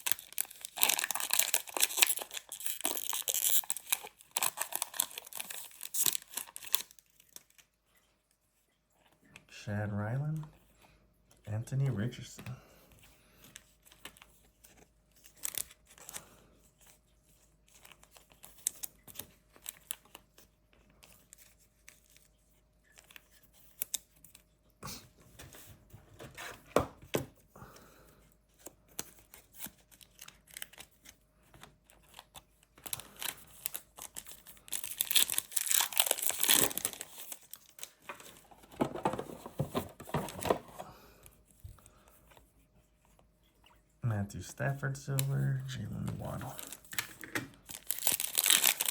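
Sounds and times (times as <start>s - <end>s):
plastic wrapper tearing and crinkling: 0.0s - 7.7s, 13.9s - 16.3s, 17.8s - 20.2s, 29.0s - 31.2s, 31.9s - 40.6s, 45.2s - 48.9s.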